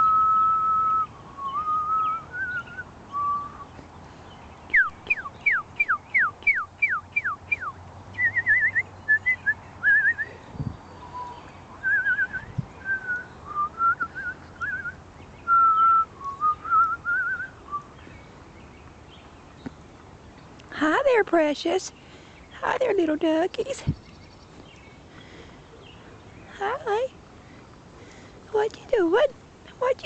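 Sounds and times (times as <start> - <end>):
person whistling bird-like tune: 0.0 - 3.7, 4.7 - 10.3, 11.2 - 18.0.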